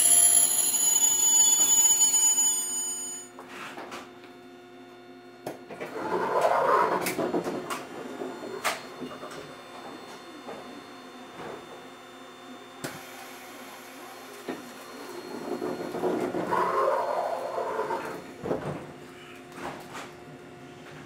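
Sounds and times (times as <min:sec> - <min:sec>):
train high-pitched whine: 0:00.0 - 0:03.7, 0:12.9 - 0:18.3.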